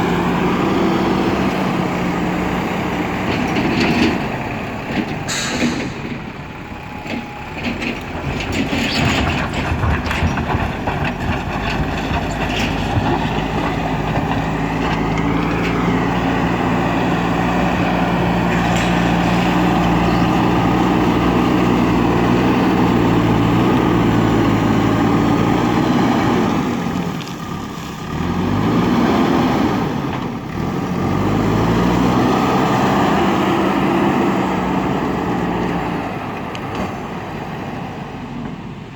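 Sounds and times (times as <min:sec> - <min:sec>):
diesel engine droning: 0:00.0 - 0:38.9
rattling and knocks: 0:04.9 - 0:15.9.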